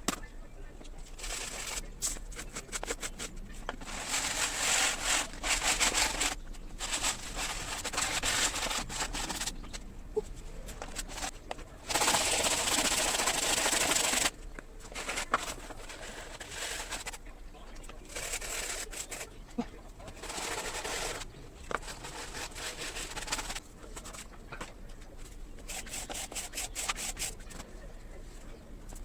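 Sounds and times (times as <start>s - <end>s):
sanding on wood: 1.2s - 9.5s, 11.9s - 14.3s, 18.0s - 19.4s, 20.1s - 23.6s, 25.7s - 27.4s.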